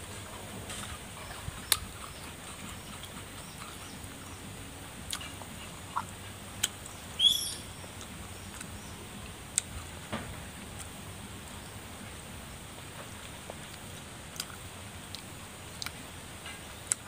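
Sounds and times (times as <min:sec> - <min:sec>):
background hiss: 0:00.0 - 0:17.0
mouth clicks and smacks: 0:01.3 - 0:04.4, 0:05.1 - 0:07.0.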